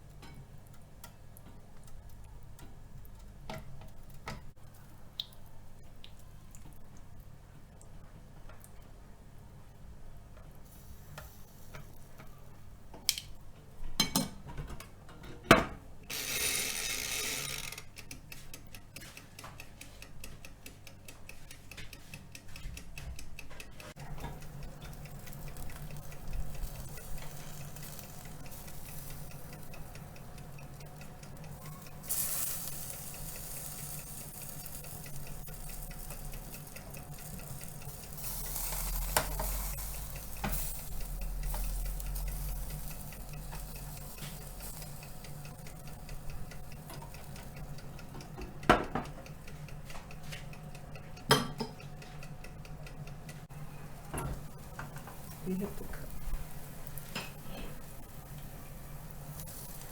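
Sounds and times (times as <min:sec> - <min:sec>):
chicken sizzling in a pan: 0:10.7 - 0:12.3, 0:24.1 - 0:47.6, 0:54.8 - 0:59.9
steady low hum: 0:18.5 - 0:59.9
fast even ticking: 0:19.6 - 0:48.4.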